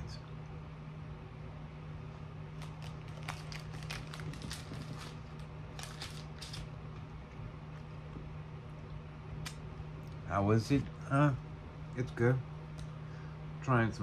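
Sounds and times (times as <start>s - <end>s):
steady low hum: 0.0s - 14.0s
candy chewing clicks and crackles: 2.6s - 6.7s.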